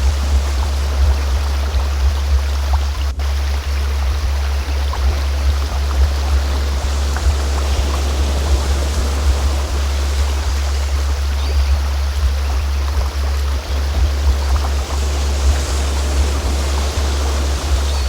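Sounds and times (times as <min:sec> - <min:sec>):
flowing stream: 0:00.0 - 0:18.0
low continuous tone: 0:00.0 - 0:18.0
faint bird-like chirp: 0:05.4 - 0:18.0.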